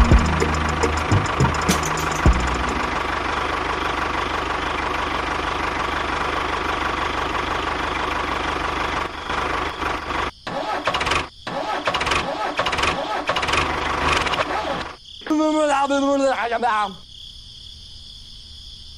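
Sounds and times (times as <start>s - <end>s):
miniature tractor motor running: 11.8s - 14.9s.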